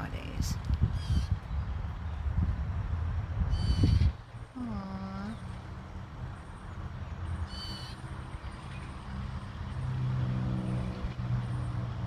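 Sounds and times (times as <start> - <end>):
high bird chirp: 3.5 - 5.5
vehicle engine humming: 4.2 - 12.0.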